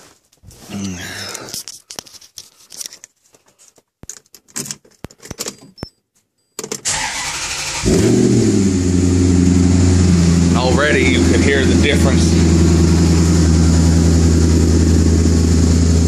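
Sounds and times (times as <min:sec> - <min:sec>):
starter cranking engine: 0:06.8 - 0:08.5
car engine idling loudly: 0:07.0 - 0:16.0.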